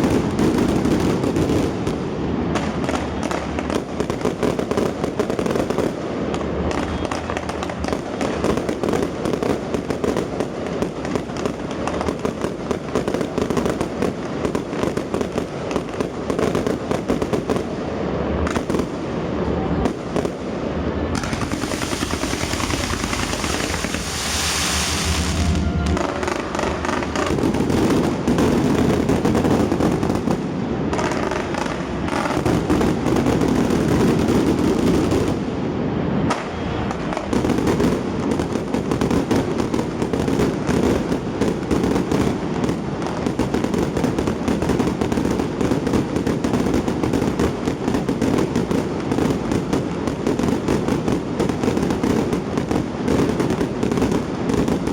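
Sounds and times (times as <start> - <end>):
fireworks bursts and crackles: 0.0 - 54.9
fireworks hissing shower: 21.2 - 28.4.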